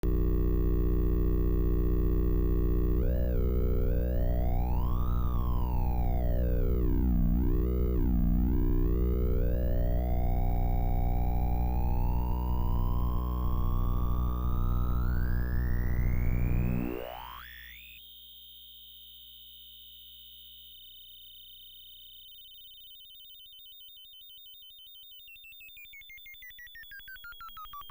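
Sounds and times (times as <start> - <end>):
pulsing low drone: 0.0 - 17.2
buzzy synth tone: 0.0 - 18.0.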